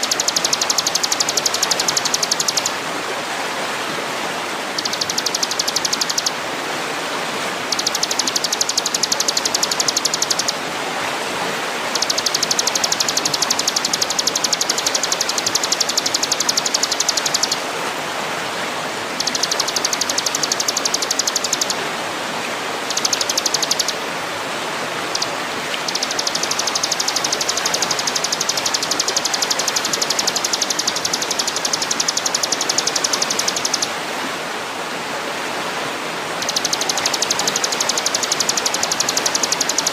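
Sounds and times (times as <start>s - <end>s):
rapid buzzing bird trill: 0.0s - 2.8s, 4.7s - 6.4s, 7.6s - 10.6s, 11.9s - 17.6s, 19.2s - 21.8s, 22.9s - 24.0s, 25.1s - 33.9s, 36.4s - 39.9s
steady rushing hiss: 0.0s - 39.9s.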